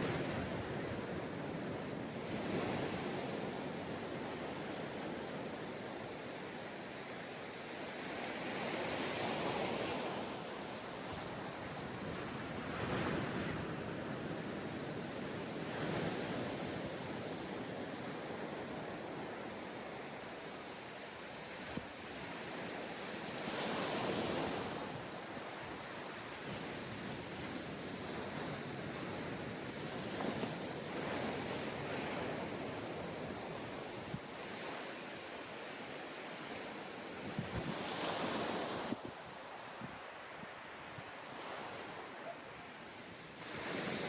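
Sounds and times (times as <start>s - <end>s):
wind on microphone: 37.1s - 42.3s.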